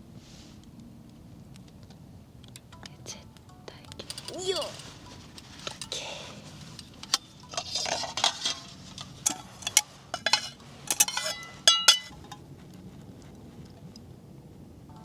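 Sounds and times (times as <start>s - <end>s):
ringing clinks: 2.7s - 12.4s
utensils and containers clattering: 4.0s - 12.4s.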